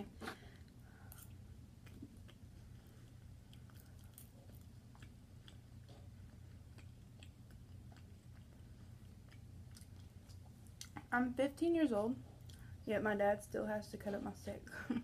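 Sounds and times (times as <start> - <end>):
low steady hum: 0.0 - 15.0
faint chewing: 0.2 - 11.2, 12.2 - 12.8.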